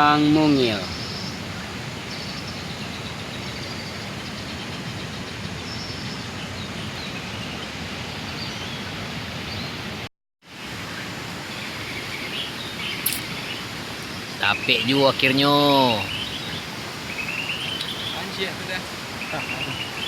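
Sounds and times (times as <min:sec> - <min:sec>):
steady rushing outdoor noise: 0:00.0 - 0:20.0
faint high chirps: 0:17.3 - 0:18.3.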